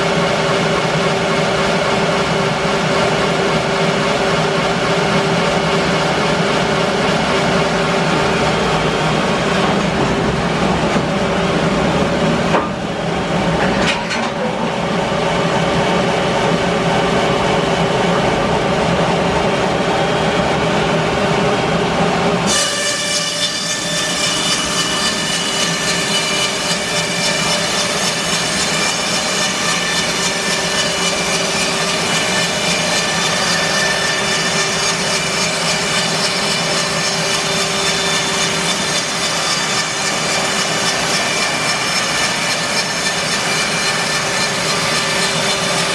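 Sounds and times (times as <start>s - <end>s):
band sawmill cutting wood: 0.0s - 45.9s.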